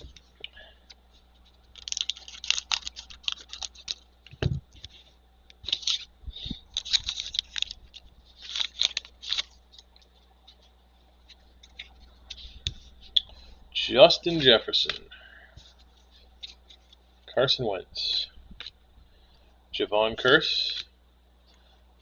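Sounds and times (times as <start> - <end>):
cards and wrapper rustling: 1.4 - 10.7.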